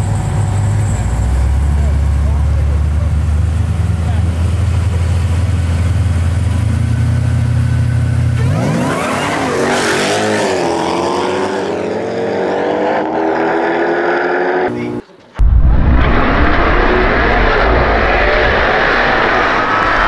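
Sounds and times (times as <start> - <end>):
car engines idling: 0.0 - 8.4
race car engines accelerating: 0.0 - 15.1.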